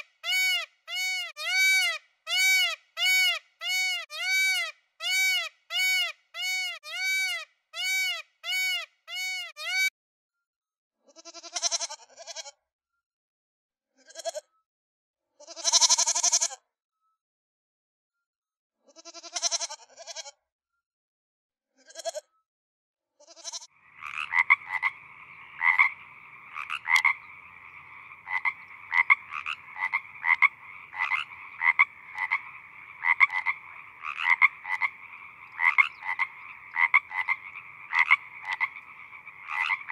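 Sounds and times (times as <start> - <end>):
bleat-like animal calls: 11.1 - 12.6, 14.0 - 14.5, 15.4 - 16.6, 18.9 - 20.4, 21.8 - 22.3, 23.2 - 24.9
short arching animal calls: 23.4 - 39.9
chorus of frogs croaking: 23.5 - 39.9.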